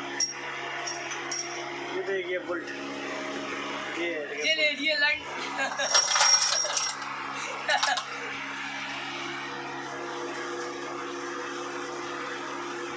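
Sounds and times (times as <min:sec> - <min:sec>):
motor humming: 0:00.0 - 0:12.9
clinks: 0:00.2 - 0:01.6, 0:05.7 - 0:07.1.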